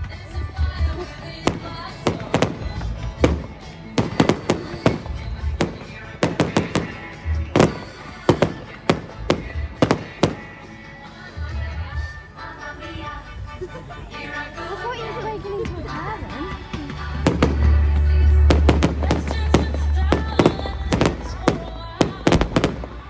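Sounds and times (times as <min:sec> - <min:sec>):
fireworks bangs: 0:00.9 - 0:10.6, 0:17.1 - 0:23.0
music with bass beat: 0:15.6 - 0:22.9.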